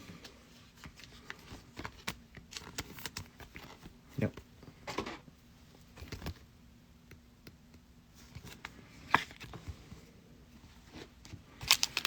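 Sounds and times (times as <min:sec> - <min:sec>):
foil wrapper crinkling: 0:11.6 - 0:12.0.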